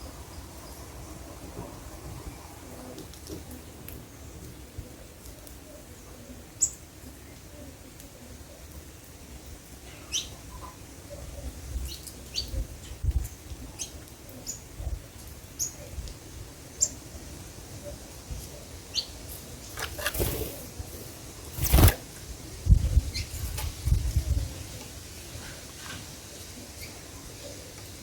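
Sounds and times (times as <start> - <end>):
small birds chirping: 2.2 - 8.8, 9.8 - 16.0, 16.7 - 17.1, 17.9 - 21.9, 26.2 - 28.0
rustling: 19.7 - 22.1.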